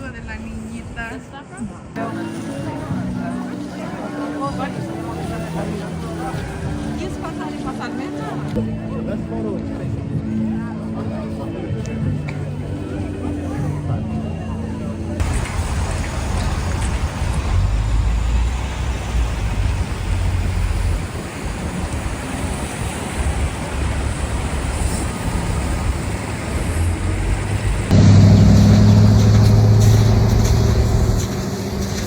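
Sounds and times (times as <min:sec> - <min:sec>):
street rumble: 0:00.0 - 0:32.0
low droning hum: 0:26.7 - 0:32.0.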